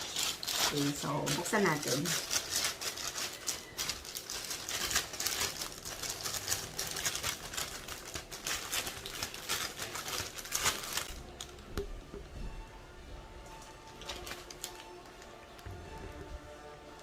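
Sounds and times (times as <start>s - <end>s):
parcel wrapping crinkling: 0.0s - 11.7s, 13.5s - 17.0s.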